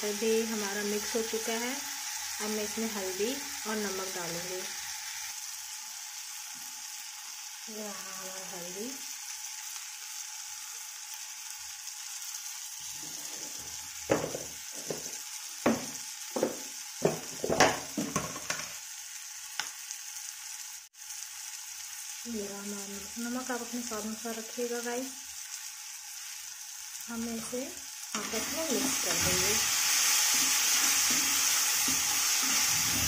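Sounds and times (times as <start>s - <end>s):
vegetables frying in oil: 0.0s - 33.0s
utensil knocking against pan: 14.1s - 18.7s.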